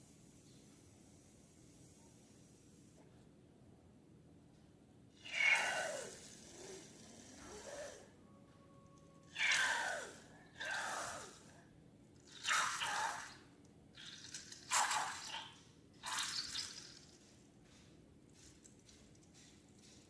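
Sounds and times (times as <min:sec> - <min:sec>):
wet squelching of slime: 0:12.2 - 0:17.8.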